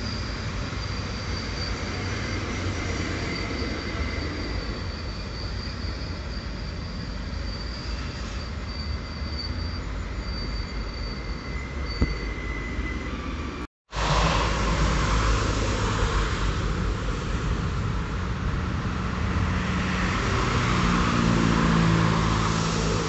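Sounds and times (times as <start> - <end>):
high-pitched wheel squeal: 0.0 - 13.5
train wheels rumbling on rail: 0.0 - 23.0.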